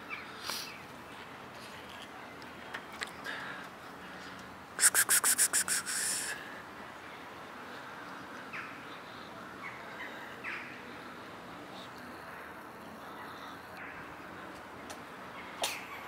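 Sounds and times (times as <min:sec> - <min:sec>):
bird rattling call: 0:04.8 - 0:06.3.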